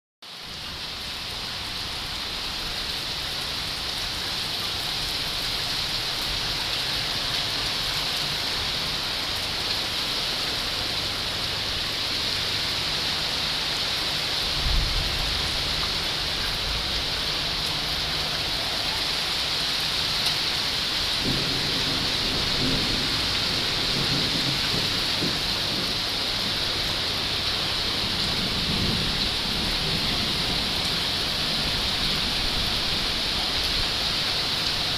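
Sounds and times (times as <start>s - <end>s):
heavy rain pouring: 0.3s - 34.9s
thunder rumbling: 14.6s - 17.6s, 21.2s - 33.2s.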